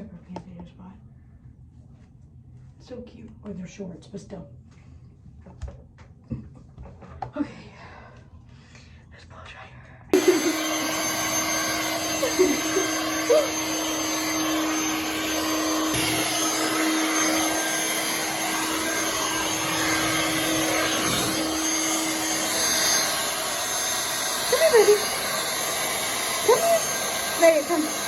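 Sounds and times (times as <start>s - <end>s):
hair dryer blowing: 10.1s - 28.0s.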